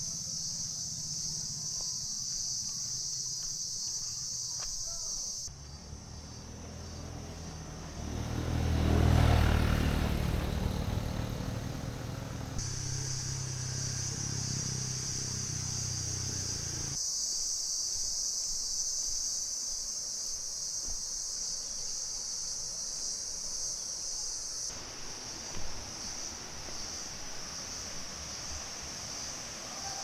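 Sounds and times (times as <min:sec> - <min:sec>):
insect chorus drone: 0:00.0 - 0:30.0
low engine hum: 0:05.5 - 0:17.0.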